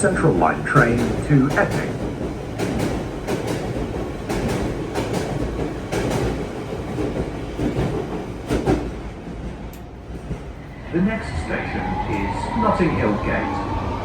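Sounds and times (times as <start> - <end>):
train cabin rumble: 0.0 - 14.0.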